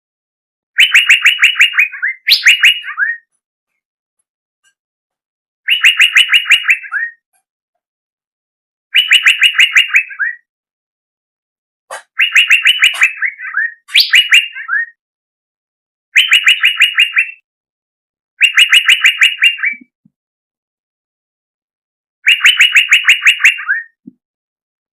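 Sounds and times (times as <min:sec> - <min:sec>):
songbird singing: 0:00.8 - 0:03.3.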